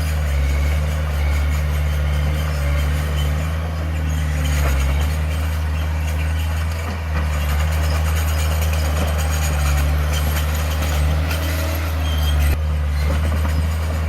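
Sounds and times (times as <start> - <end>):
diesel engine humming: 0.0 - 14.0.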